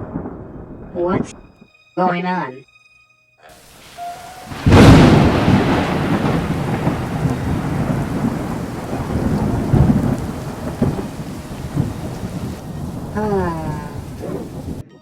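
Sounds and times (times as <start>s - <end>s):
thunder rumbling: 0.0s - 1.6s, 3.6s - 14.9s
heavy rain: 3.5s - 14.8s.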